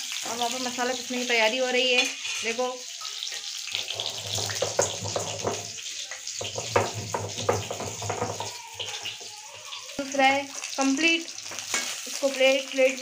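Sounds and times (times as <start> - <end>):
potatoes sizzling in hot oil: 0.0 - 13.0
stone roller grinding on stone: 3.8 - 5.8.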